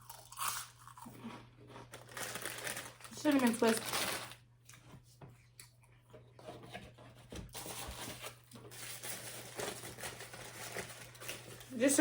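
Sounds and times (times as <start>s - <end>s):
crunching snack: 0.0s - 4.4s
paper wrapper rustling: 2.0s - 4.4s, 7.5s - 12.0s.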